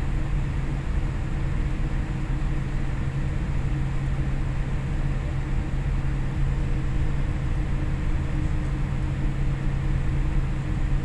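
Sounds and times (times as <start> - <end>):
airliner cabin hum: 0.0 - 11.0.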